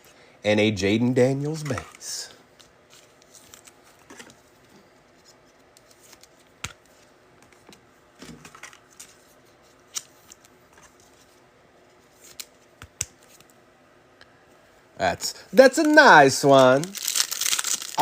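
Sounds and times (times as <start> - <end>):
cards rustling: 1.5 - 11.4, 12.0 - 13.6, 15.5 - 18.0.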